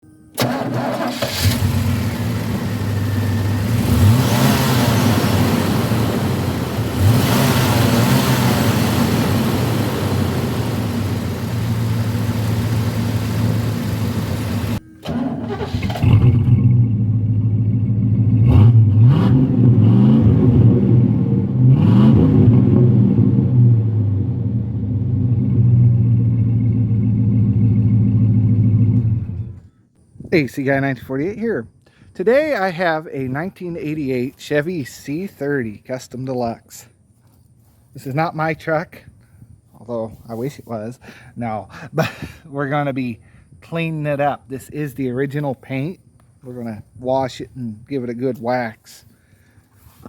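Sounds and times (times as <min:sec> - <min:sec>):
engine revving: 0:00.4 - 0:29.5.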